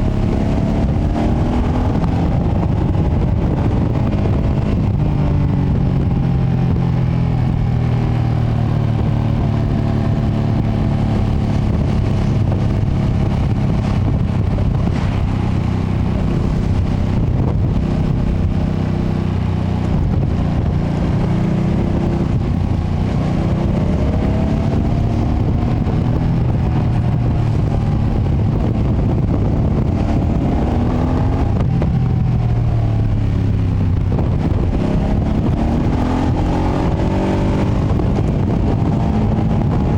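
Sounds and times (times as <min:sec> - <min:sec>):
motorcycle engine revving: 0:00.0 - 0:39.9
road noise: 0:00.0 - 0:39.9.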